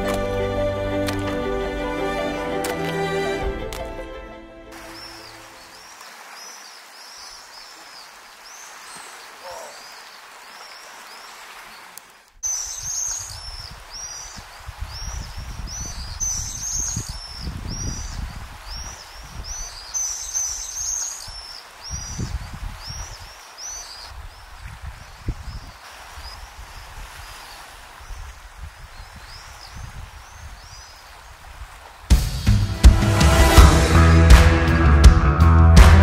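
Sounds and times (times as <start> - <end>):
small birds chirping: 4.8 - 32.1
wind rumbling on microphone: 12.4 - 23.4, 24.0 - 32.2.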